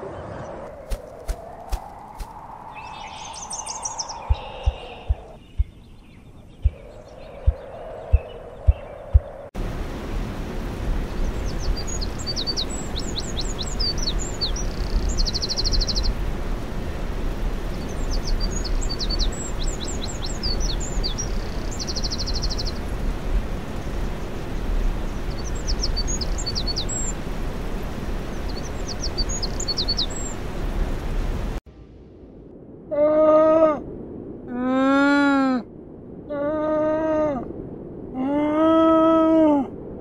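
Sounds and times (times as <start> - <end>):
low background rumble: 0.0 - 40.0
wren singing: 2.7 - 9.5, 11.1 - 16.3, 17.4 - 30.5.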